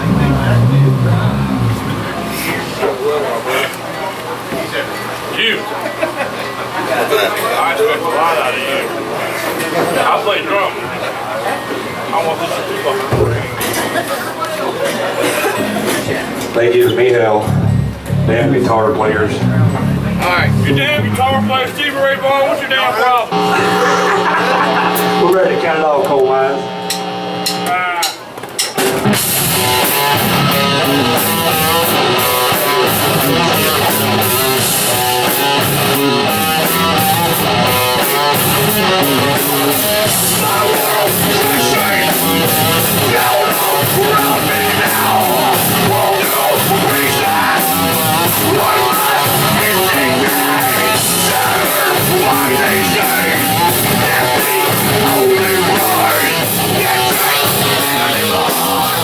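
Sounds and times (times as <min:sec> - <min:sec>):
rock band playing: 0:00.0 - 0:03.4, 0:17.4 - 0:21.5, 0:23.3 - 0:28.1, 0:28.8 - 0:59.0
electric guitar: 0:00.0 - 0:04.3, 0:23.3 - 0:59.0
drum kit: 0:28.8 - 0:59.0.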